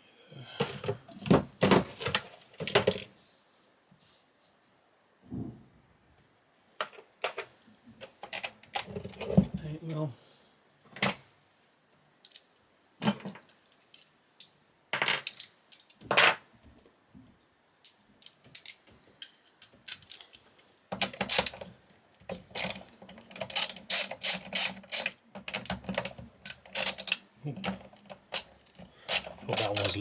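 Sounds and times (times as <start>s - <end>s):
socket ratchet clicking: 22.6s - 25.2s.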